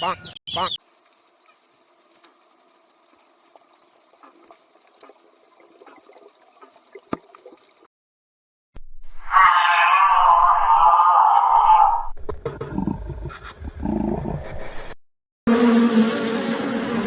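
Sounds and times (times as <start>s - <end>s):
water bubbling and gurgling: 0.8s - 7.9s
small pops: 5.8s - 7.7s
loud animal sound: 9.2s - 12.1s.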